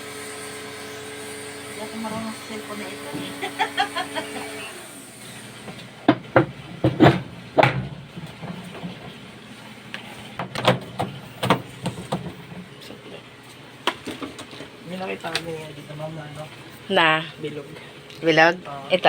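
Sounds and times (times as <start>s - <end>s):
hard parts knocking and clattering: 6.1s - 9.1s.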